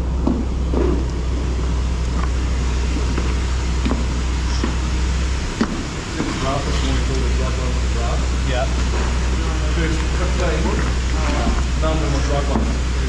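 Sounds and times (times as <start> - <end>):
milking machinery hum: 0.0 - 13.0.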